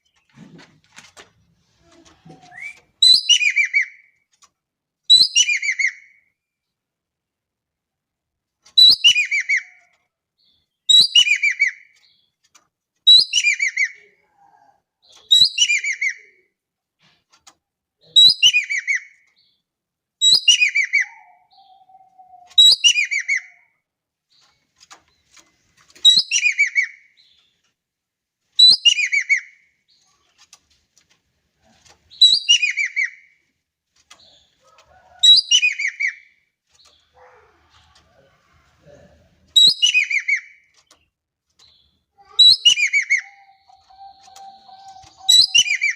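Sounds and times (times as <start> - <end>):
bird calling with descending notes: 42.2 - 45.9.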